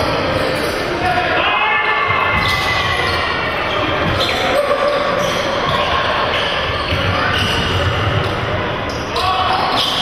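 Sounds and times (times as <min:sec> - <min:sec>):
shoe squeaks: 0:02.4 - 0:08.3.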